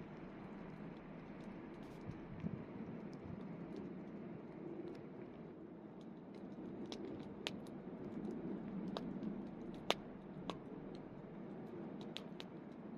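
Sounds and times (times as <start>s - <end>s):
campfire burning: 0.0s - 12.9s
fire crackling and popping: 5.9s - 12.9s.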